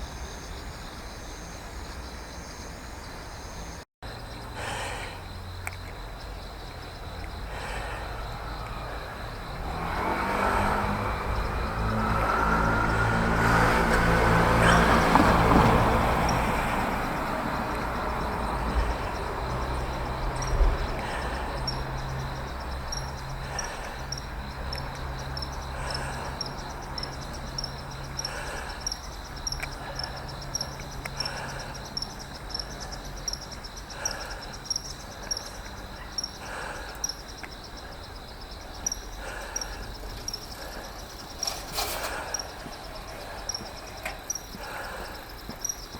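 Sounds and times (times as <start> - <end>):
crickets chirping: 0.0 - 45.9
vehicle engine humming: 5.3 - 45.9.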